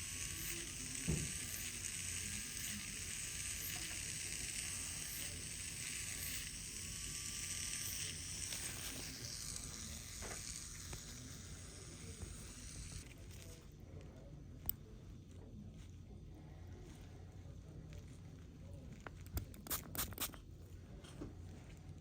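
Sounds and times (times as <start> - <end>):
motorized medical device hissing: 0.0 - 13.6.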